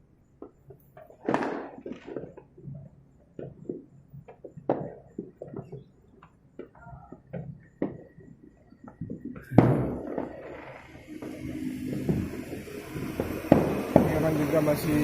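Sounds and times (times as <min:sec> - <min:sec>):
distant fireworks popping: 0:00.0 - 0:15.0
thin steady whistle: 0:06.7 - 0:15.0
firework bang with rumbling tail: 0:09.1 - 0:15.0.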